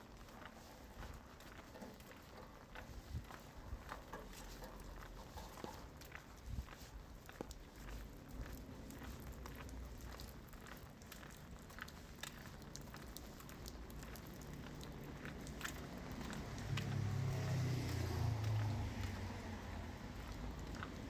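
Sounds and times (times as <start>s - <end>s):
rain falling: 3.6s - 21.0s
drops tapping and ticking: 7.2s - 17.1s.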